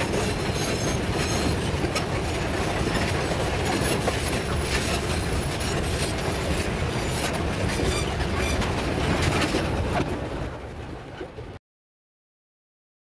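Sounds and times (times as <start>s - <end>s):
freight train rumble: 0.0s - 11.6s
wheels clacking over rail joints: 0.0s - 11.6s.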